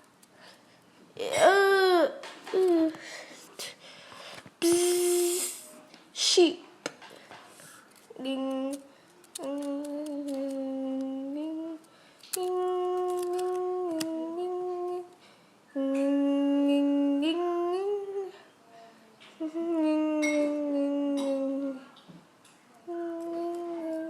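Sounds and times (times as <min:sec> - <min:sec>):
person singing long held notes: 0:09.4 - 0:15.2, 0:15.8 - 0:18.4, 0:19.4 - 0:21.9, 0:22.9 - 0:24.0.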